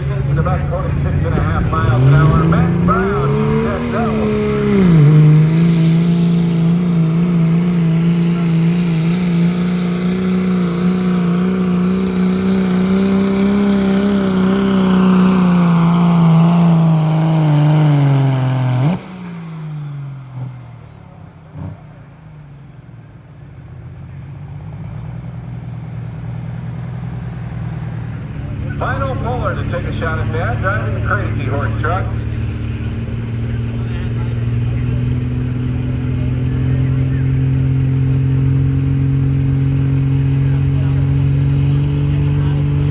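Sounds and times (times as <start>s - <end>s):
diesel truck engine revving: 0.0s - 42.9s.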